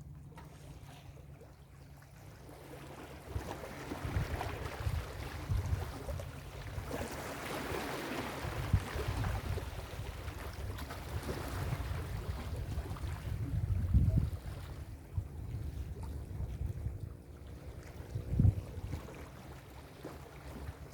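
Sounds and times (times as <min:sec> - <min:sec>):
wind gusting on microphone: 0:04.0 - 0:06.3, 0:08.4 - 0:17.2, 0:18.0 - 0:18.9.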